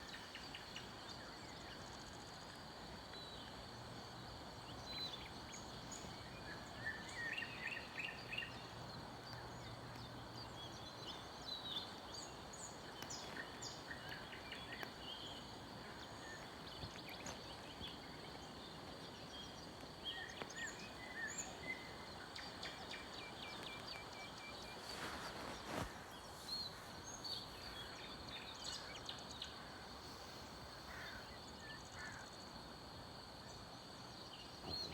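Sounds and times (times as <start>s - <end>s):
background hiss: 0.0s - 34.9s
small birds chirping and singing: 3.0s - 34.9s
faint low hum: 33.4s - 34.9s.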